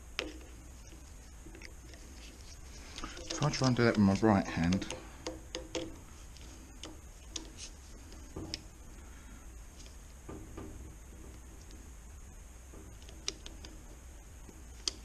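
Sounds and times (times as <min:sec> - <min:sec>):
hand tools clicking and tapping: 0:00.0 - 0:02.1, 0:02.9 - 0:08.7.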